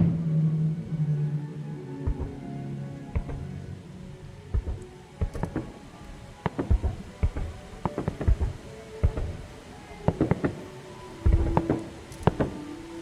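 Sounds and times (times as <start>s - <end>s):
fireworks banging: 6.4s - 12.7s.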